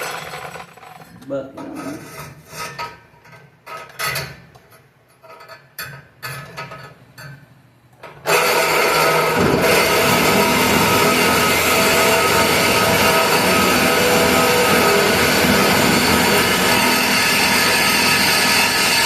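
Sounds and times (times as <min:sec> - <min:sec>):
clatters and scrapes: 0:00.0 - 0:07.4
reciprocating saw cutting metal pipe: 0:08.3 - 0:19.0.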